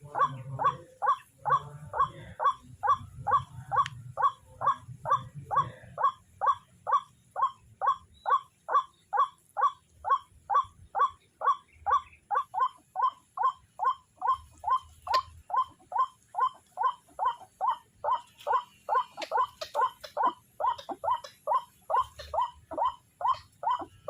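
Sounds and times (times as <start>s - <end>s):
waterhen calling hoarse notes: 0.0s - 24.0s.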